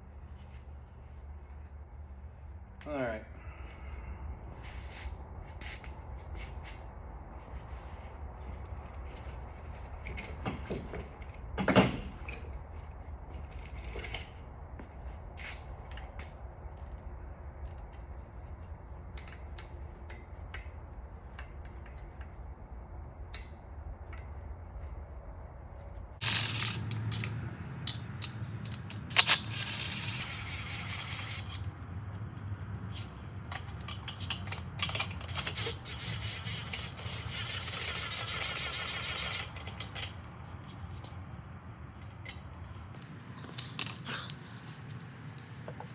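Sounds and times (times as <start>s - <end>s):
metal engine parts clinking: 10.0s - 12.6s, 26.2s - 31.7s, 33.4s - 40.3s, 43.4s - 45.0s
hand tools clicking: 26.2s - 31.7s.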